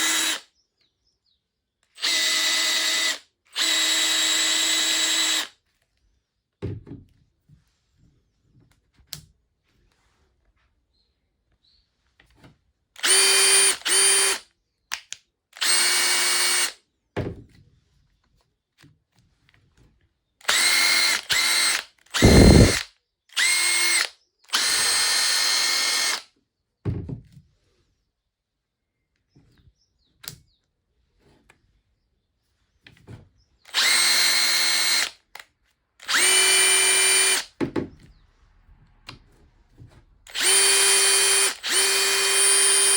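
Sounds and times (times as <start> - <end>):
impact driver motor whining: 2.0 - 5.5, 13.0 - 14.4, 15.6 - 16.7, 20.4 - 22.8, 23.4 - 26.2, 33.7 - 35.2, 36.0 - 37.5, 40.3 - 42.9.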